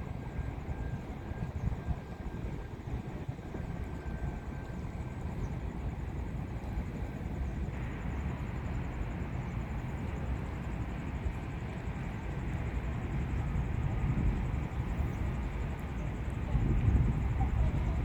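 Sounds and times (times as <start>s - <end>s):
faint high whine: 0.0s - 18.0s
low outdoor rumble: 0.0s - 18.0s.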